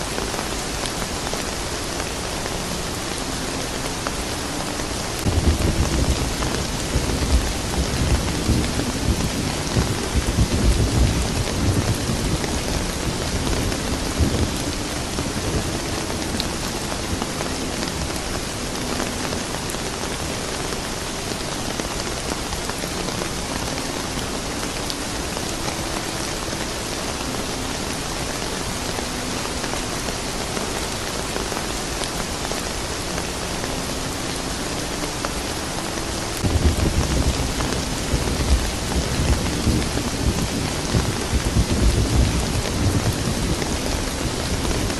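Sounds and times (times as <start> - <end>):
steady rain pattering: 0.0 - 44.9
low thunder rumbles: 5.2 - 17.3, 36.4 - 44.9.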